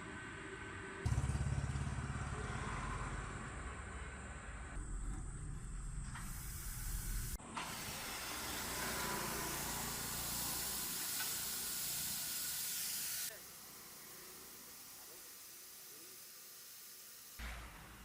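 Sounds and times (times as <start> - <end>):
street sweeper rumble: 1.0 - 12.4
loud steady hiss: 6.2 - 18.0.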